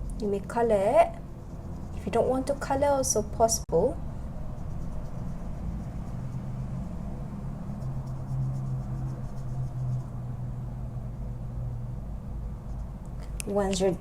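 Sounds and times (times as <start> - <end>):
marker scratching on a spoon: 0.0 - 3.7, 4.5 - 10.3
low electrical hum: 0.0 - 14.0.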